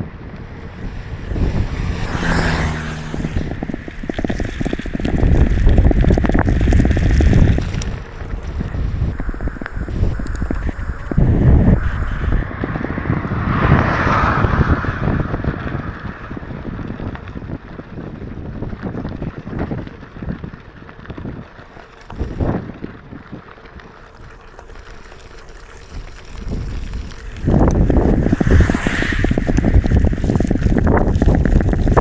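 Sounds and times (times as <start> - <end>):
bike tyres rumbling on road: 0.0 - 32.0
wind buffeting microphone: 0.0 - 32.0.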